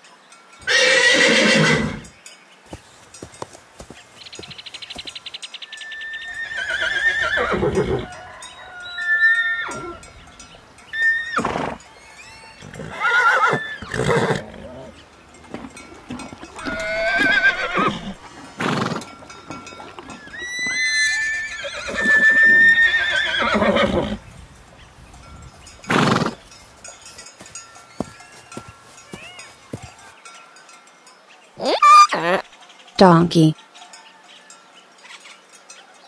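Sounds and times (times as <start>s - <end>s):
horses neighing: 0.6s - 2.1s, 5.9s - 30.2s, 31.6s - 32.5s.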